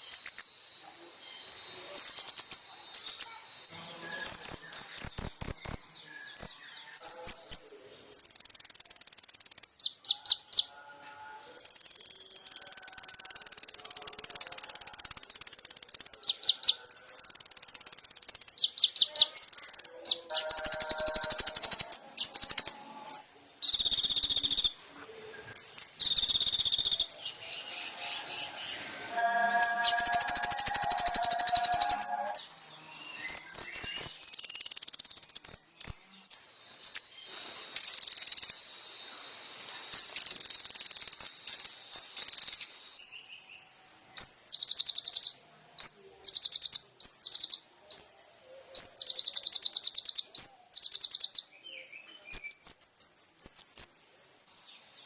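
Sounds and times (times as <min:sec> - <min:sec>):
fuller lower bird chirps: 0:00.0 - 0:55.0
rapid high chirping trills: 0:02.0 - 0:10.8, 0:11.5 - 0:24.8, 0:25.6 - 0:32.5, 0:33.2 - 0:37.1, 0:37.8 - 0:38.8, 0:40.0 - 0:42.7, 0:48.8 - 0:51.5
buzzy reeling birdsong: 0:02.0 - 0:24.8, 0:25.5 - 0:36.0.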